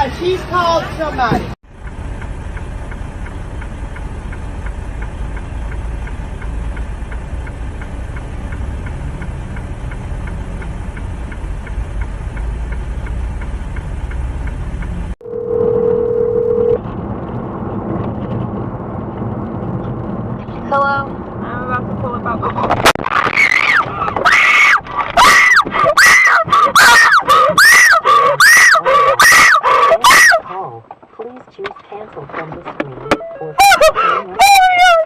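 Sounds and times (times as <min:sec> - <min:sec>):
car road and engine rumble: 0:00.0 - 0:35.0
faint regular ticking: 0:01.8 - 0:15.2.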